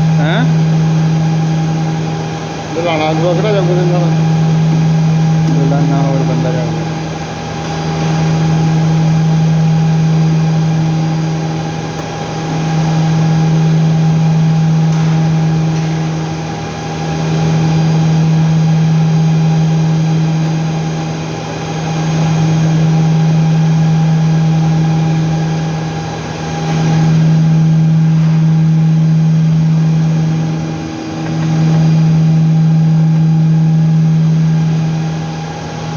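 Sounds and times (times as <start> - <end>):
loud machine hum: 0.0 - 35.9.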